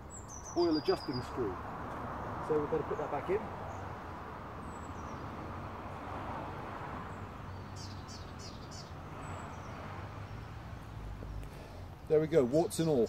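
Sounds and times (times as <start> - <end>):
small bird chirping: 0.0 - 1.5, 7.5 - 9.8.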